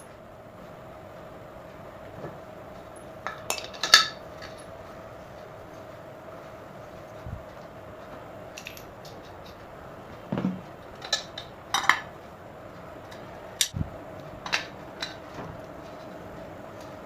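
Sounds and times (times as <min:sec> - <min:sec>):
faint hum: 0:00.0 - 0:17.0
metal tools clinking and knocking: 0:08.6 - 0:09.6.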